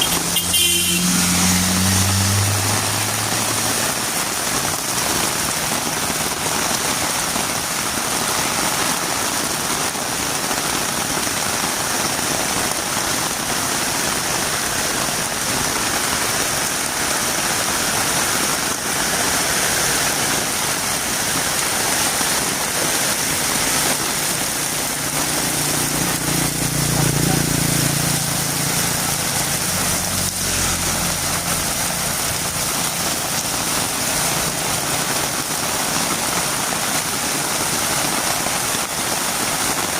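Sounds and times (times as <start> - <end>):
vehicle engine passing: 0.0 - 6.1, 21.0 - 35.2
heavy rain on a road: 0.0 - 39.9.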